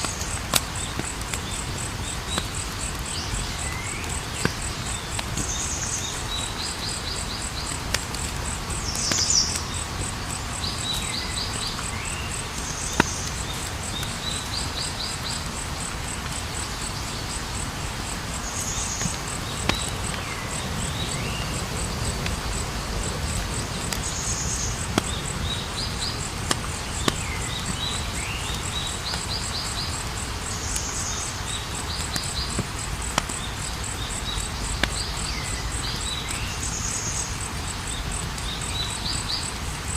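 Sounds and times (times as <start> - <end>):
crickets chirping: 0.0 - 39.9
wood fire crackling and popping: 0.0 - 39.9.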